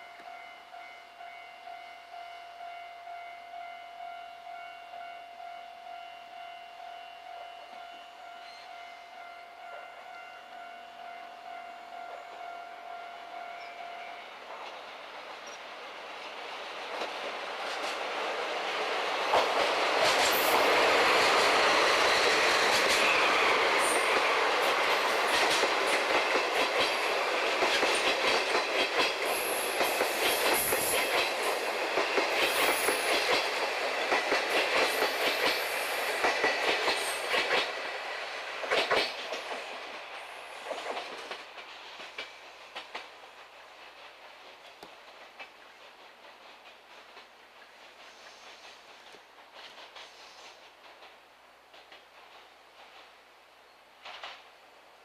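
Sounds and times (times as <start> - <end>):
train wheels clattering on rail joints: 16.2 - 37.8, 38.6 - 53.2, 54.0 - 54.5.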